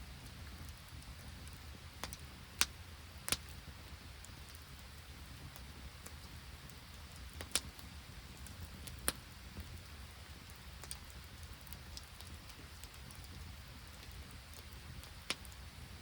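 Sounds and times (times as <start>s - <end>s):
campfire crackling: 0.0s - 16.0s
light rain patter: 0.0s - 16.0s
sharp pops from fire: 0.1s - 16.0s.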